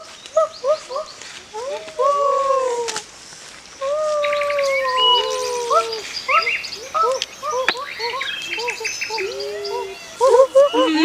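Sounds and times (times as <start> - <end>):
bird-like chirps: 3.7 - 11.0
animal calls: 3.9 - 11.0.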